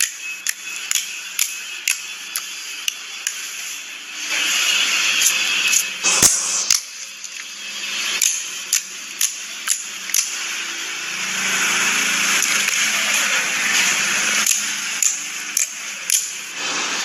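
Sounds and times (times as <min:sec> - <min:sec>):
sharp air pops: 0:06.0 - 0:06.9.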